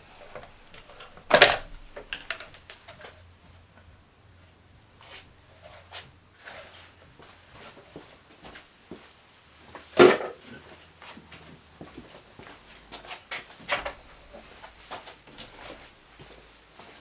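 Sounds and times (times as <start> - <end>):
hand tools clicking and knocking: 0.0 - 3.0.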